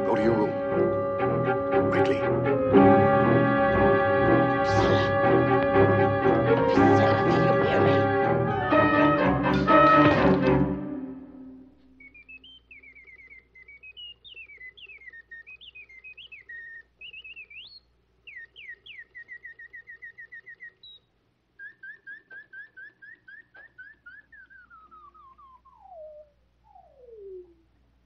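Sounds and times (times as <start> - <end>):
caged bird whistling song: 11.9 - 27.6.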